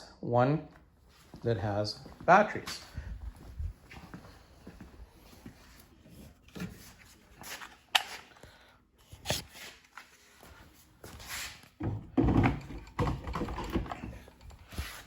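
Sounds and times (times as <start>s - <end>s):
hands handling table saw parts: 5.6s - 8.4s.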